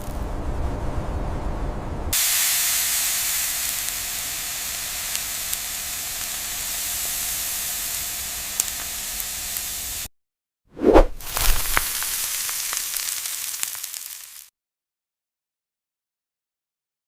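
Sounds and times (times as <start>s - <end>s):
steady hiss: 2.2s - 10.1s, 11.2s - 14.5s.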